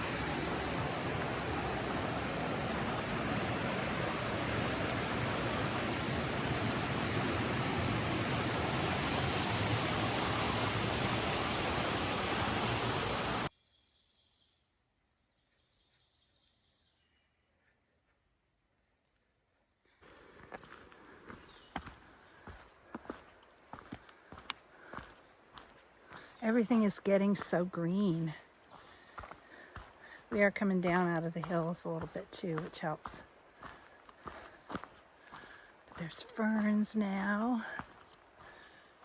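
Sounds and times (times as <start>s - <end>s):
stream water rushing: 0.0s - 13.5s.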